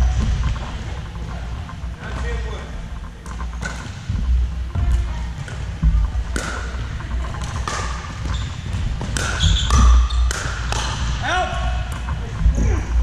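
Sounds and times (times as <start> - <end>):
ball bouncing on court: 3.2 - 12.8
paddles striking plastic ball: 7.4 - 11.2.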